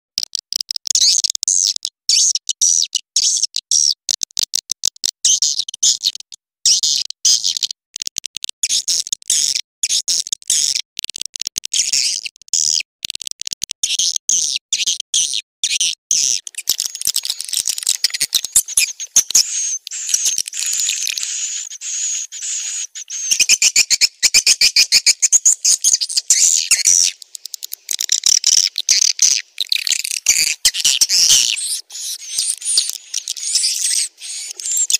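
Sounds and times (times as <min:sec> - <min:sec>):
high-pitched bird twittering: 0:15.7 - 0:34.9.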